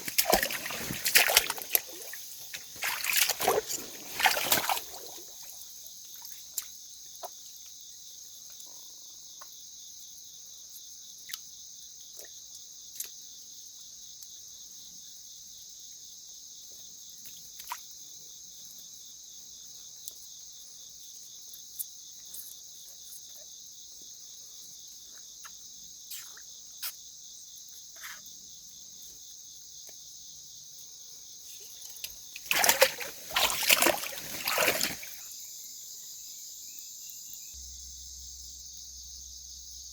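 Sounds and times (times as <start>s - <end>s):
loud splashing in water: 0.0s - 5.6s, 32.4s - 35.2s
crickets and insects chorus: 0.0s - 39.9s.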